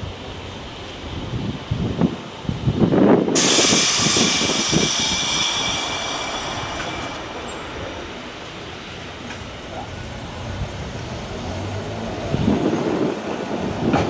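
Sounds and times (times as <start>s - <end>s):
train rumbling knocks: 1.5s - 14.0s
high-pitched squeal of train wheels: 3.4s - 8.6s.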